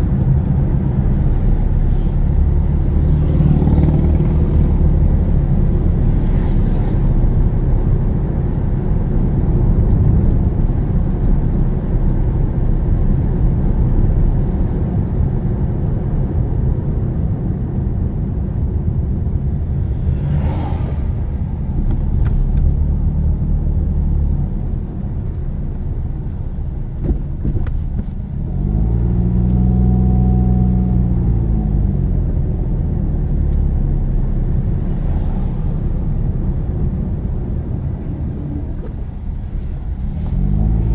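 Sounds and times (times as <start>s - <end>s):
car engine from inside: 0.0s - 40.9s
road rumble: 0.0s - 40.9s.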